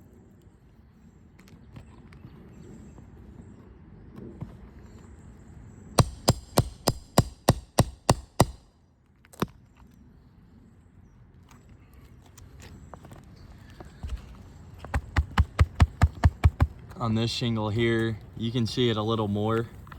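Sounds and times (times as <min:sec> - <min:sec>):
hammer strikes: 0:06.0 - 0:08.6.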